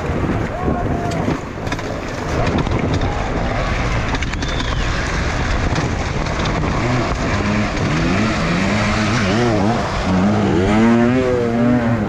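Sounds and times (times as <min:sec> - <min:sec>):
wind buffeting microphone: 0:00.0 - 0:12.0
dirt bike engine revving: 0:03.7 - 0:12.0.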